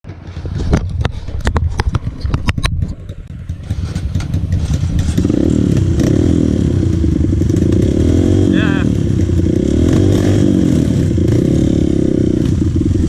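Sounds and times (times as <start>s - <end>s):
sharp clattering knocks: 0.1s - 6.2s
dirt bike engine revving: 3.3s - 13.0s.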